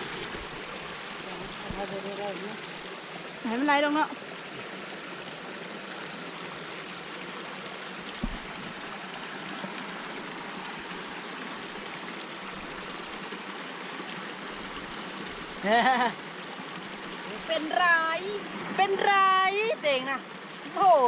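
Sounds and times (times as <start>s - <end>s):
flowing water rushing: 0.0s - 21.0s
short knock: 8.2s - 8.5s.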